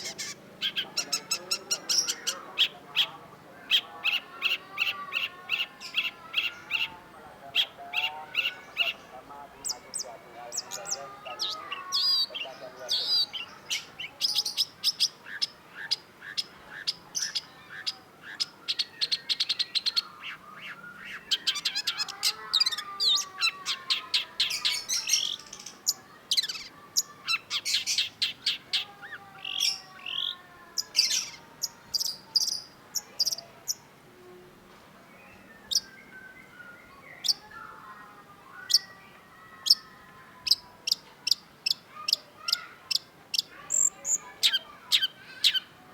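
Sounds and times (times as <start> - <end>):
shrike chattering song: 0.0 - 33.8.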